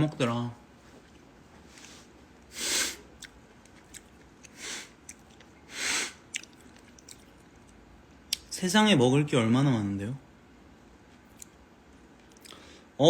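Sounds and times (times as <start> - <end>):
breaths through the nose: 2.0 - 3.1, 5.7 - 6.2
mouth clicks while chewing: 6.3 - 8.5.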